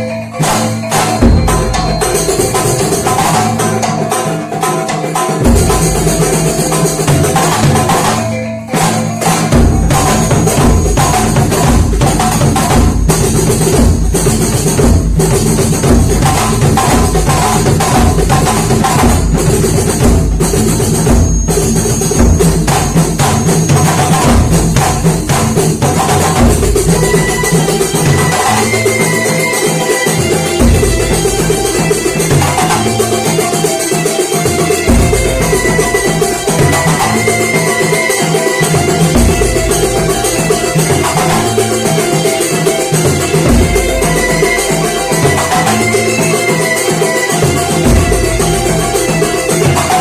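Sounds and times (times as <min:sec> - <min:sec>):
frame drums: 0:00.0 - 0:50.0
bass drum beats: 0:09.4 - 0:28.6, 0:47.6 - 0:50.0.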